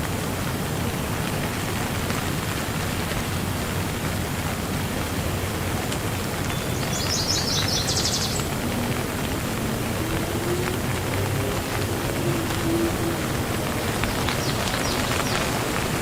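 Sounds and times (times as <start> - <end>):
rain falling: 0.0 - 16.0
bird chirping and trilling: 6.5 - 8.5.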